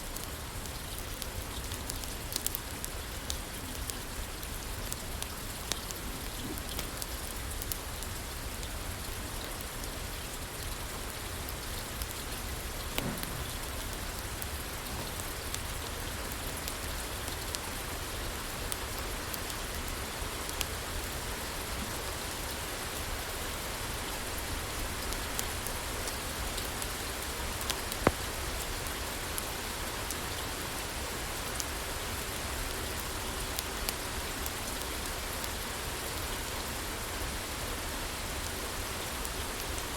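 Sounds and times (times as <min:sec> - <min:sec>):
rain falling on a roof: 0:00.0 - 0:39.9
wood fire crackling and popping: 0:00.2 - 0:08.7, 0:23.0 - 0:30.2.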